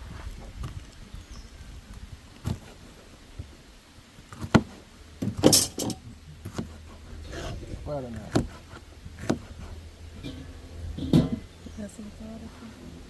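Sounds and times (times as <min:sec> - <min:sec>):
low background rumble: 0:00.0 - 0:13.0
utensils scraping clatter: 0:05.2 - 0:06.0
utensils knocking against a pot: 0:05.4 - 0:06.0.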